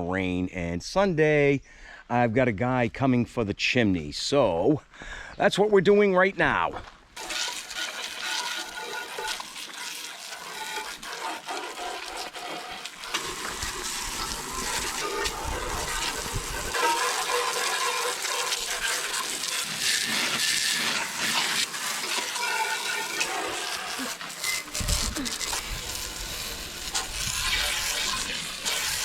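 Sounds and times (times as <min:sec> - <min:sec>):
garden hose spraying water: 0:07.2 - 0:29.0.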